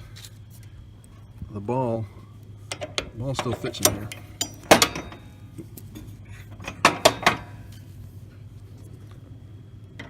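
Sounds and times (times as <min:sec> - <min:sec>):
light metal clicks and clinks: 0:02.7 - 0:05.3.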